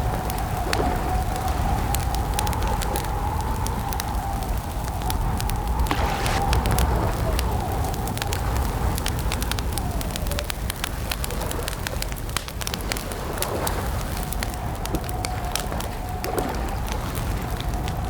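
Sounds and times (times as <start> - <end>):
campfire crackling and popping: 0.0 - 18.0
low rumble: 3.7 - 11.4.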